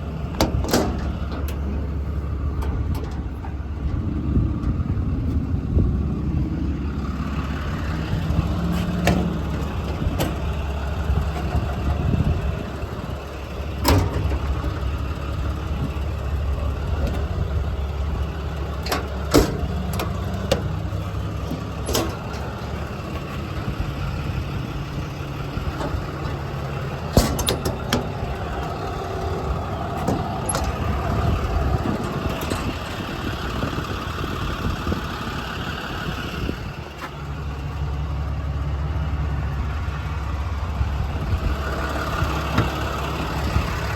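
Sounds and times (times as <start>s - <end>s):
diesel engine idling: 0.0s - 43.9s
sharp clicks and knocks: 0.3s - 1.8s, 13.7s - 15.2s, 18.8s - 23.8s, 25.0s - 33.0s.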